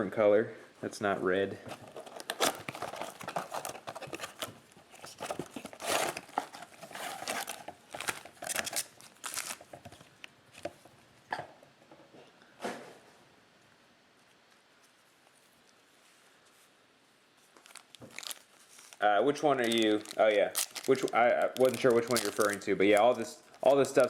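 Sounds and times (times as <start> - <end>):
cards and packaging rustling: 1.6 - 11.0, 17.4 - 24.0.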